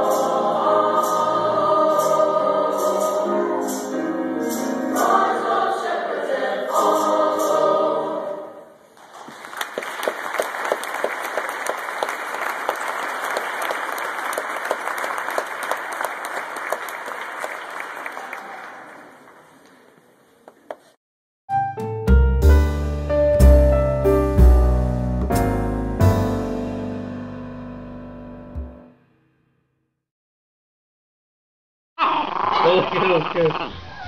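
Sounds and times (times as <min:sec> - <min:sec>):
choir singing held chord: 0:00.0 - 0:08.8
audience applauding: 0:09.0 - 0:20.0.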